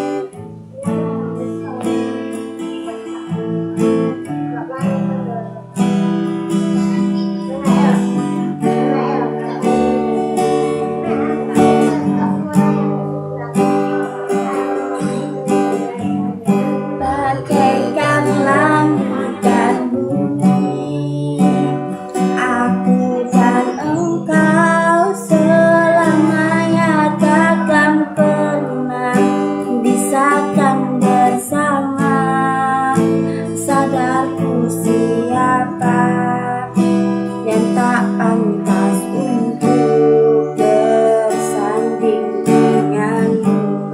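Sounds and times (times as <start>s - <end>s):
acoustic guitar strumming chords: 0.0s - 43.9s
wavering guitar melody: 0.0s - 43.9s.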